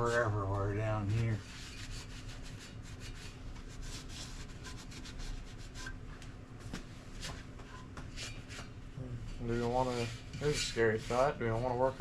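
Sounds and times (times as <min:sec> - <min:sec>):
rubbing and scraping strokes: 0:00.0 - 0:06.0, 0:09.4 - 0:12.0
faint steady hum: 0:00.0 - 0:12.0.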